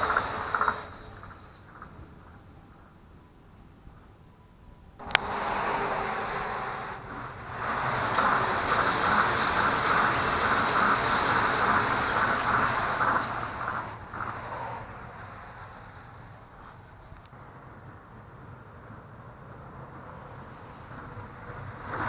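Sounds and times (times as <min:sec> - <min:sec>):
monorail train passing overhead: 0:00.0 - 0:22.0
rhythmic train clatter: 0:00.0 - 0:22.0.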